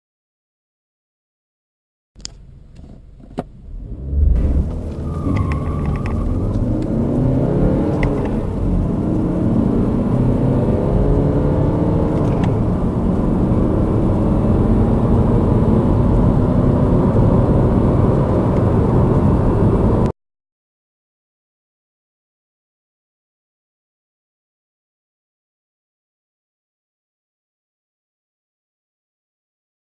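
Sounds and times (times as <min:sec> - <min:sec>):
car engine accelerating: 0:02.7 - 0:20.1.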